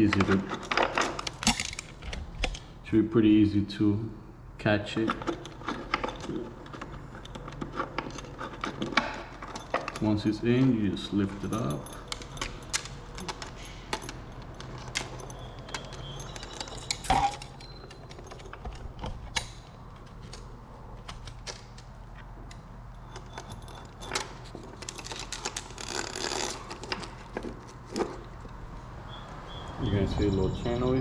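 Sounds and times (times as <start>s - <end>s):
metal chain clinking and rattling: 0.0s - 2.1s, 5.0s - 20.3s, 21.3s - 28.5s.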